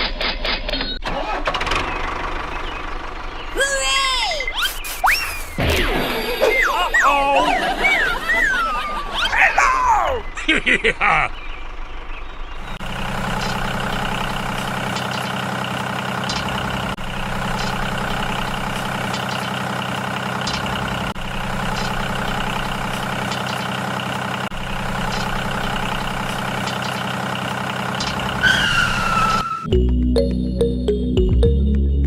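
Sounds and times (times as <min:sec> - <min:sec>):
engine-like idling hum: 0:01.0 - 0:04.0, 0:07.6 - 0:29.7.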